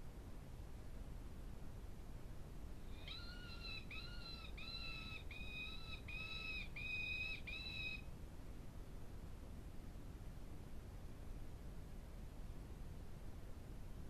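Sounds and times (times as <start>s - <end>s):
animal calling: 2.9s - 8.0s.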